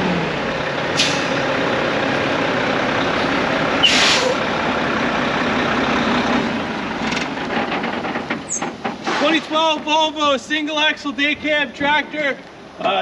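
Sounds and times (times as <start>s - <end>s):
diesel truck engine idling: 0.0s - 11.6s.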